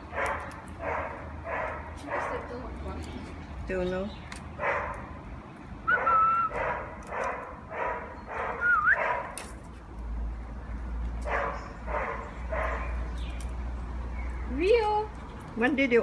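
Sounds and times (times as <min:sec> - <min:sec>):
birds making bark-like calls: 0:00.0 - 0:16.0
bird whistling: 0:05.8 - 0:06.6, 0:08.5 - 0:09.2.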